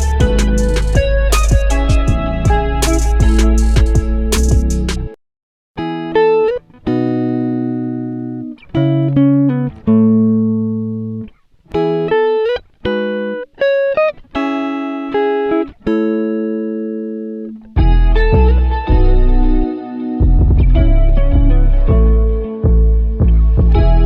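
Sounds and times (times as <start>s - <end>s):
guitar playing notes and chords: 0.0s - 5.2s, 5.8s - 24.0s.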